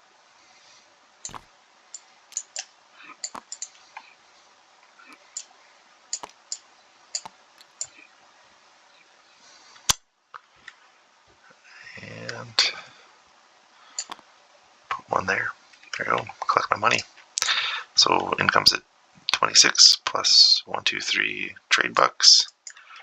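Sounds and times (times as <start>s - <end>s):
game pieces clicking on board: 7.2s - 7.9s.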